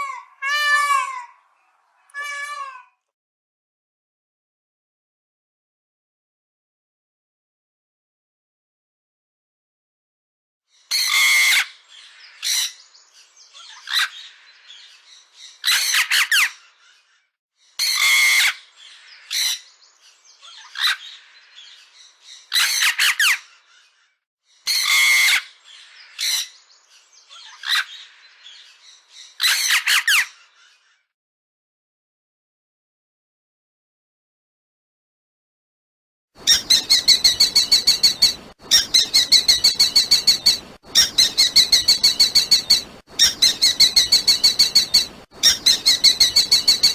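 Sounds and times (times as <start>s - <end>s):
harsh bird calls: 10.8s - 31.1s, 36.4s - 46.9s.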